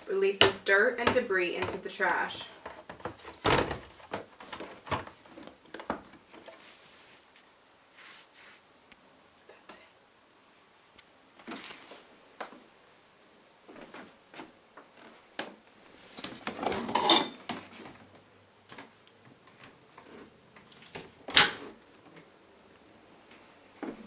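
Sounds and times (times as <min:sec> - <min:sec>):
plastic vacuum parts clicking: 0:00.0 - 0:06.5, 0:18.7 - 0:22.3.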